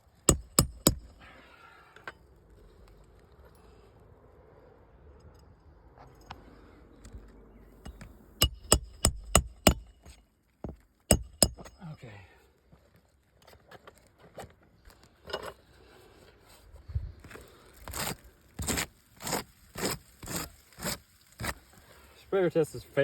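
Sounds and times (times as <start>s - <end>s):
sharp ringing metallic taps: 7.8s - 10.2s, 11.1s - 11.9s.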